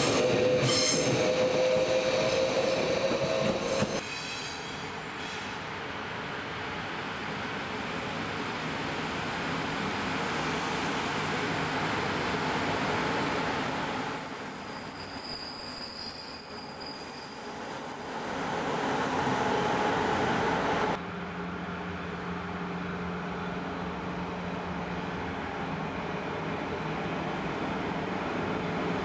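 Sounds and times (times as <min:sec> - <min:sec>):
train rushing past: 0:00.0 - 0:29.0
high wheel squeal: 0:12.3 - 0:20.6.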